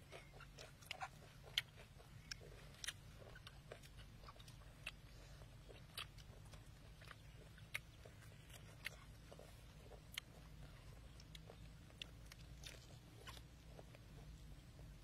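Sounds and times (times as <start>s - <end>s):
faint low hum: 0.0s - 15.0s
people chewing crunchy food: 0.0s - 15.0s.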